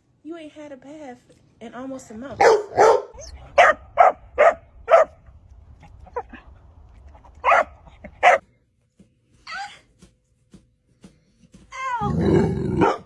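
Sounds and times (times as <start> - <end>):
dog barking: 2.4 - 5.2, 7.4 - 8.4, 12.7 - 13.0.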